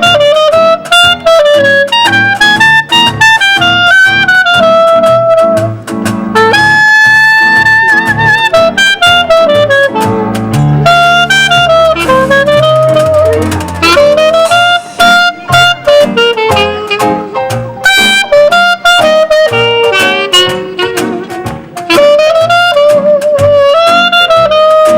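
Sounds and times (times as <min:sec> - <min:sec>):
saxophone lead: 0:00.0 - 0:24.9
walking bass line: 0:00.0 - 0:24.9
keyboard: 0:04.5 - 0:24.9
washboard ticks: 0:09.4 - 0:14.5.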